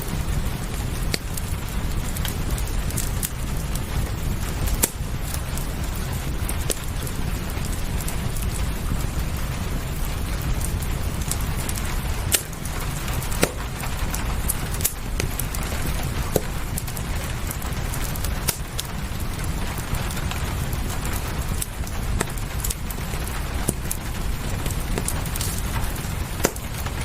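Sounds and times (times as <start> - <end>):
rain hissing: 0.0 - 27.0
wood fire crackling and popping: 0.0 - 27.0.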